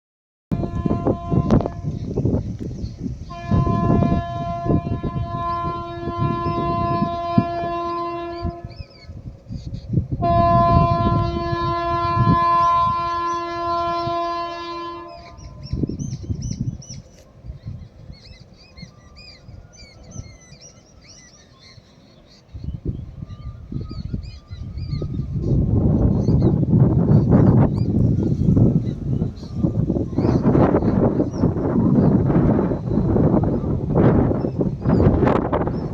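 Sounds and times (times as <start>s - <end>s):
locomotive horn blasts: 0.5s - 2.2s, 3.2s - 9.1s, 10.2s - 15.8s
train rumbling on track: 0.5s - 35.9s
birds chirping: 0.9s - 10.0s, 12.5s - 35.9s.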